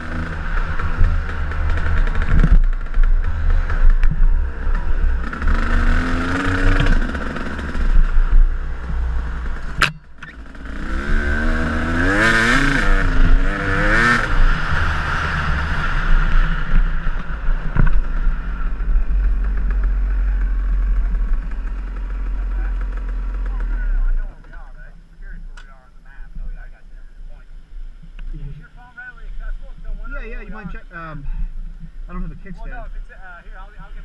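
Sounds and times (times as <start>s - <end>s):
wind rumble on microphone: 0.0s - 9.9s, 10.9s - 33.2s
dirt bike engine revving: 0.0s - 24.8s.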